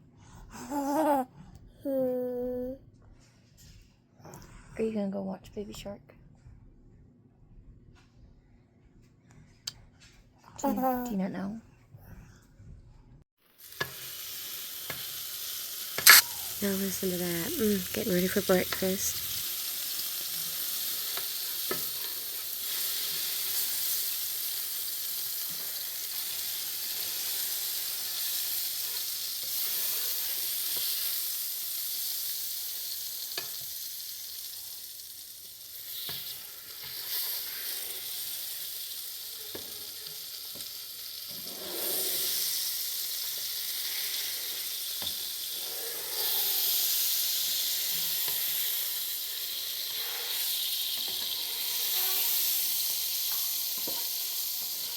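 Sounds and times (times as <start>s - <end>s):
food sizzling in frying pan: 13.4s - 54.9s.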